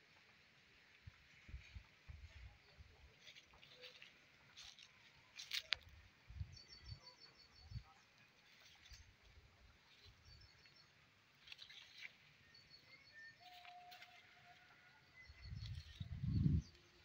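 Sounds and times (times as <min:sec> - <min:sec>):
small birds chirping: 0:01.5 - 0:17.0
low rumbling on the microphone: 0:15.4 - 0:16.8.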